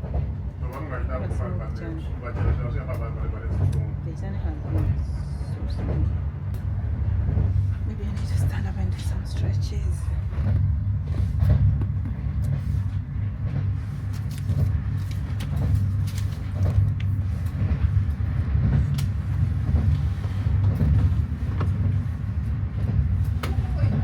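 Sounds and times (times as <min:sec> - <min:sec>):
train rumble inside coach: 0:00.0 - 0:24.0.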